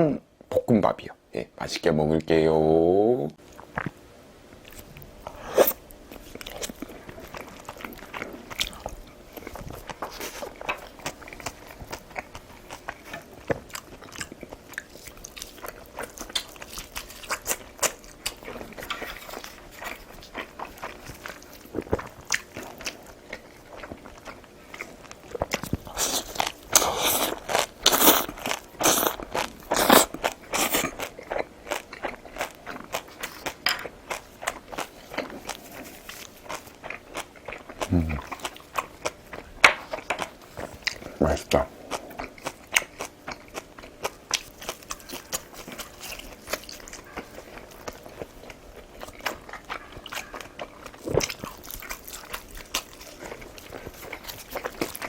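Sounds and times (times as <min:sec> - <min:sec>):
person chewing crunchy food: 0:04.6 - 0:55.0.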